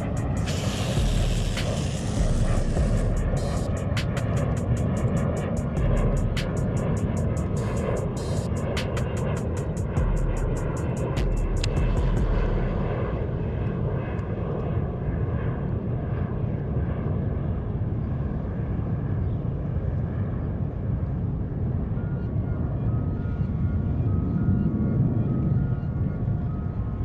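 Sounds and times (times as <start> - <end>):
low engine drone: 0.0 - 16.4.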